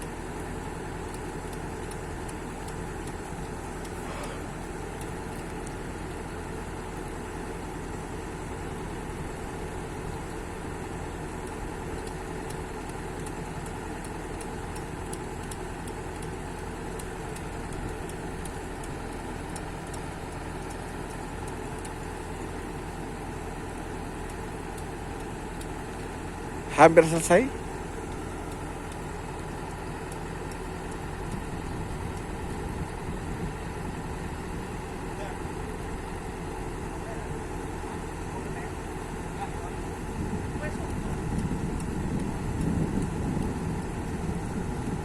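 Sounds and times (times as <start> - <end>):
engine idling: 0.0 - 45.0
faint light ticks: 1.1 - 5.8, 11.4 - 22.6, 24.2 - 26.2, 40.6 - 44.0.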